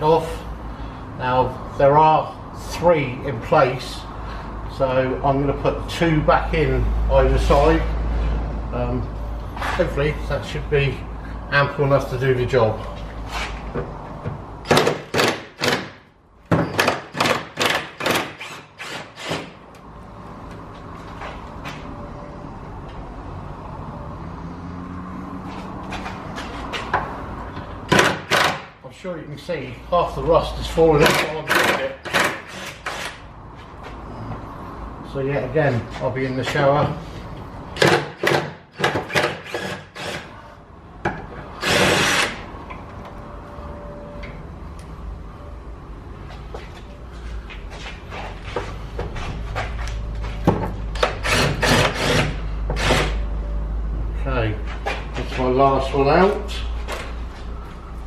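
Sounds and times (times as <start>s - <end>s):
power tool bursts on socket: 37.8s - 40.3s, 41.6s - 42.4s, 51.1s - 53.2s.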